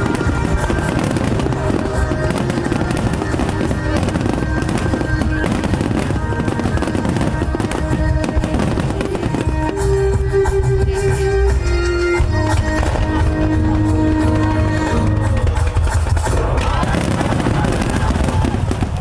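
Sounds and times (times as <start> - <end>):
fireworks bursts and crackling: 0.0 - 19.0
music playing: 0.0 - 19.0.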